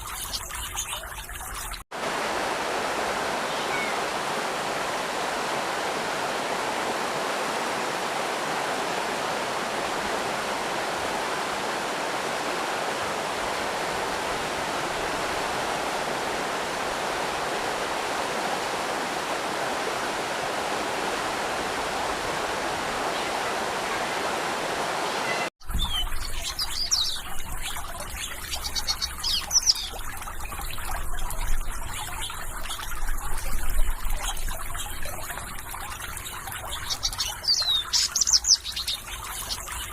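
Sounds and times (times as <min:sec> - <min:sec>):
water trickling: 0:00.0 - 0:24.2, 0:25.2 - 0:39.9
stream rushing: 0:01.9 - 0:25.5
birds chirping: 0:03.3 - 0:06.4, 0:25.0 - 0:39.9.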